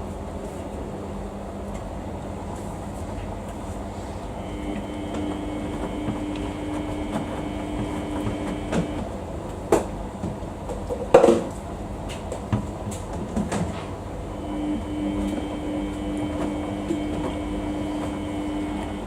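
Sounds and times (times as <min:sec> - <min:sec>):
thin motor hum: 0:04.3 - 0:09.1, 0:14.3 - 0:19.0
washing machine drum rumbling: 0:04.4 - 0:09.2, 0:12.4 - 0:19.0.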